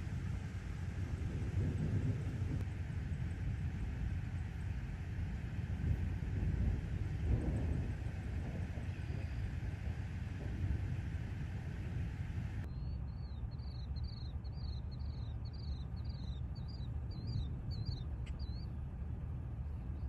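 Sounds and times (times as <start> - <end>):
wind buffeting microphone: 0.0 - 12.7.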